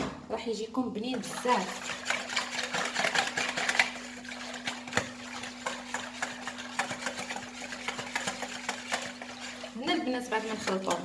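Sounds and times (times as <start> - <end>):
utensil scraping bowl: 1.0 - 11.0.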